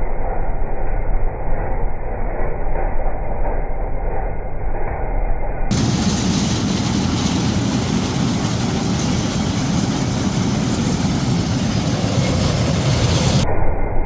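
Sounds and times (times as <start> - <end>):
moving train rumbling: 0.0 - 13.5.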